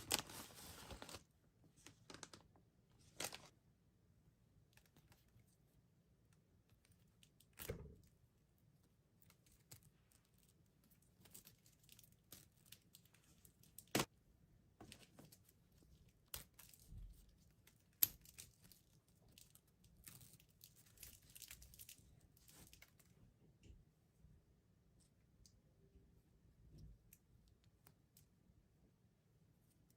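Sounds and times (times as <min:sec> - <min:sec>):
candy packaging tearing and crinkling: 0:00.0 - 0:01.2, 0:03.1 - 0:03.5.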